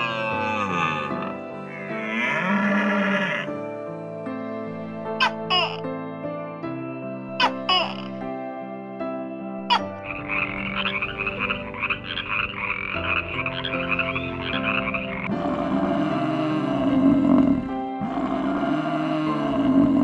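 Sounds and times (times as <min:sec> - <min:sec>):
toad trilling: 0:00.0 - 0:03.6, 0:09.7 - 0:15.3
background music: 0:00.0 - 0:20.0.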